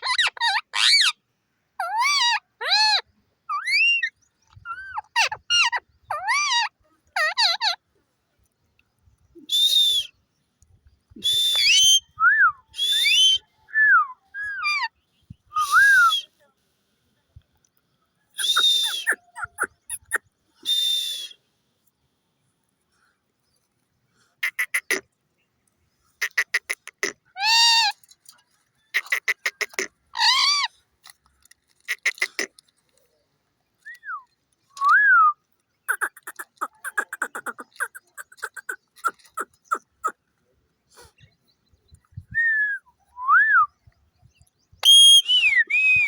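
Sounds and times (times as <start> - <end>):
parrot whistling and squawking: 18.4 - 21.3, 35.9 - 40.1.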